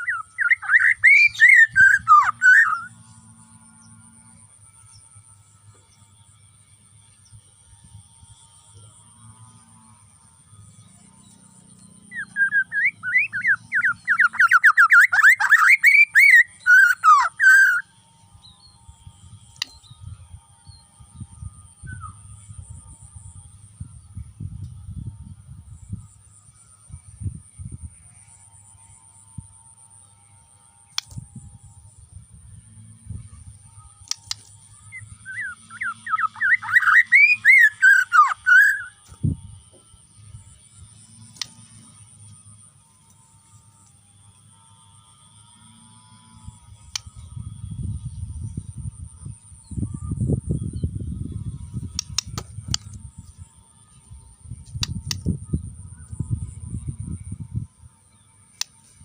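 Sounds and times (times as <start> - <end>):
bird singing whistled notes: 0.0 - 3.0, 10.8 - 18.9, 19.6 - 22.6, 34.8 - 39.0
faint low hum: 0.0 - 59.0
sharp click: 30.9 - 31.2, 34.0 - 34.6, 46.9 - 47.1, 51.9 - 53.0, 54.6 - 55.3, 58.6 - 58.8.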